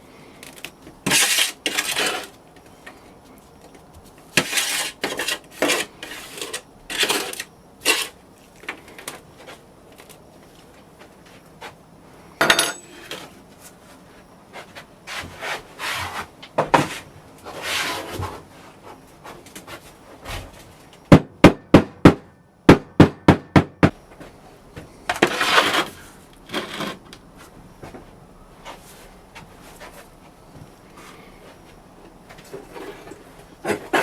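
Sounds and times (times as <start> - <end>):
sand being scraped: 1.1 - 2.4, 4.4 - 8.2, 16.9 - 18.2, 25.2 - 27.0.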